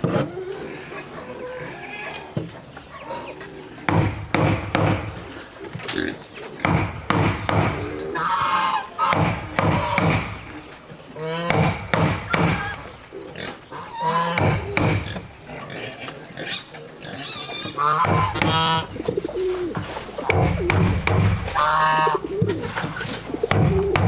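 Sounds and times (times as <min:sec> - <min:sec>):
pigeons cooing: 0:00.0 - 0:24.0
sharp knocks: 0:03.9 - 0:05.2, 0:06.6 - 0:07.8, 0:09.1 - 0:10.4, 0:11.5 - 0:12.8, 0:20.2 - 0:21.6, 0:23.5 - 0:24.0
higher wavering animal calls: 0:16.5 - 0:20.9, 0:21.5 - 0:24.0.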